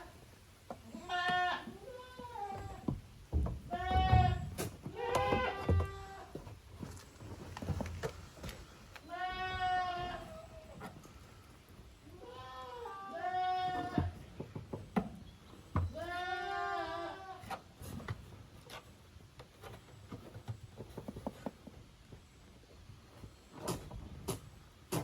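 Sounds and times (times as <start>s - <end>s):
goat kids bleating: 0.8s - 3.0s, 3.6s - 6.6s, 9.0s - 11.2s, 12.0s - 14.4s, 15.8s - 17.6s.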